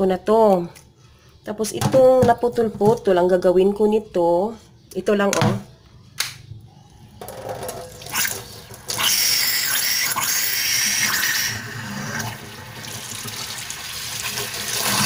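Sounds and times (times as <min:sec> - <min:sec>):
tap water running into sink: 0:12.0 - 0:15.0.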